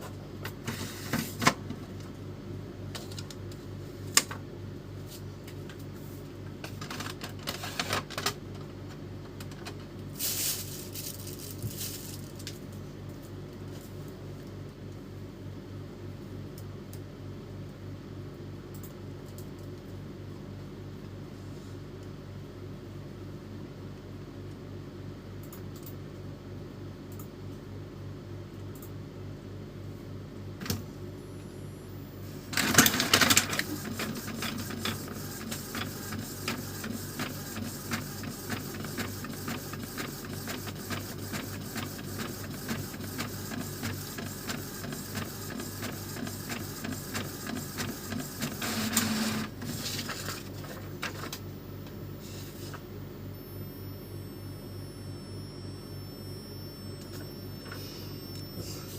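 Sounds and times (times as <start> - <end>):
printer loud burst: 32.5 - 50.0
printer mechanical ticking: 32.6 - 49.8.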